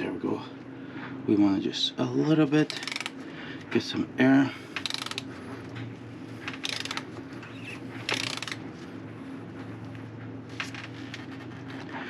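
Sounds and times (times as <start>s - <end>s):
ratchet turning: 2.7s - 3.2s, 4.8s - 5.3s, 6.5s - 7.0s, 8.1s - 8.6s.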